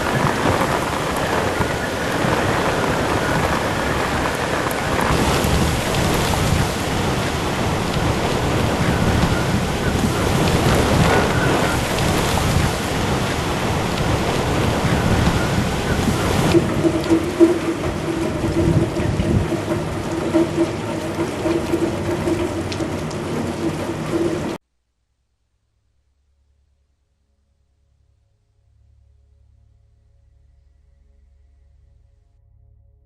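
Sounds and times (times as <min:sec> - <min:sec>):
heavy rain and wind rushing: 0:00.0 - 0:24.6.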